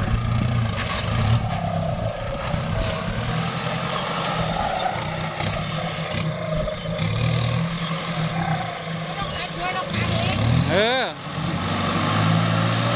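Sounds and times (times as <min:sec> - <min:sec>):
tractor diesel engine running: 0:00.0 - 0:12.9.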